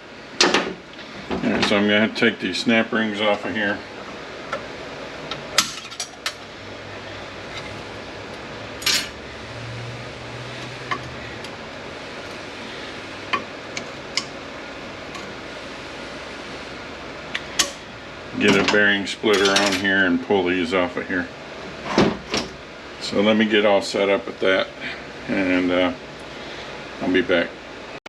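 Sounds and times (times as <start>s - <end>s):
background hum: 0.0s - 27.8s
hand tools clinking on metal: 8.8s - 9.2s, 18.6s - 19.9s.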